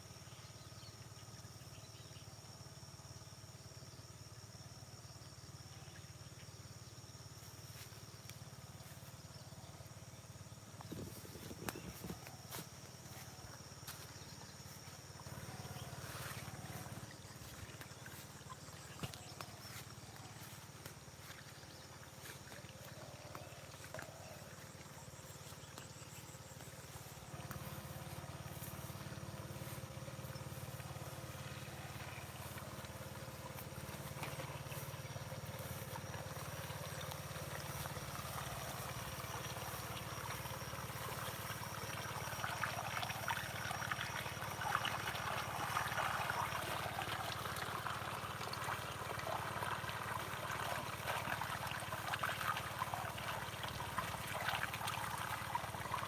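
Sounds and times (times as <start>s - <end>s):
steady low hum: 5.8s - 56.0s
water running and splashing: 14.8s - 56.0s.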